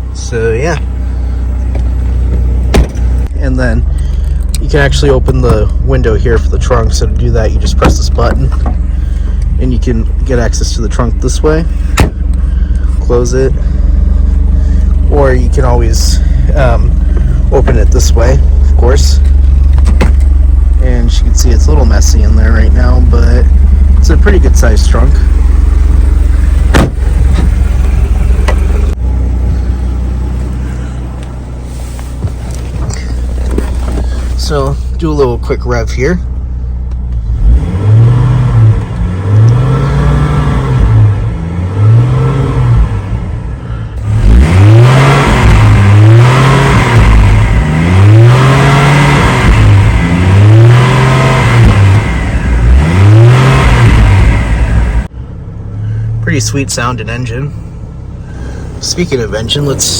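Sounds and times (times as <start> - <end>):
car engine idling: 0.0 - 59.9
thump: 2.3 - 3.0, 12.0 - 12.2, 26.7 - 27.6
engine revving in quick blips: 37.1 - 43.4, 44.0 - 55.1.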